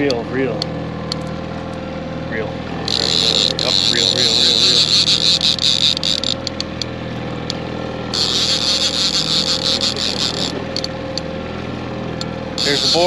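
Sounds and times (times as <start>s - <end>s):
boat engine running: 0.0s - 13.0s
high hissing noise: 2.9s - 6.3s, 8.2s - 10.8s, 12.6s - 13.0s.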